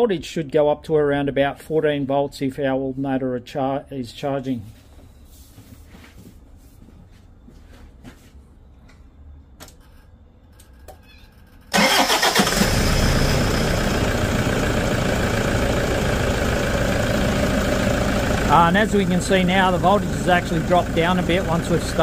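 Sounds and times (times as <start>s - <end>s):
diesel engine starting and idling: 11.4s - 22.0s.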